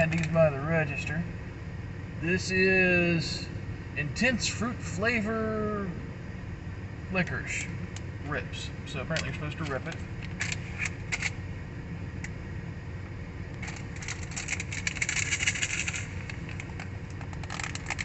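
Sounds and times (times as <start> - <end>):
steady low hum: 0.0 - 18.0
plastic package crinkling: 13.6 - 18.0.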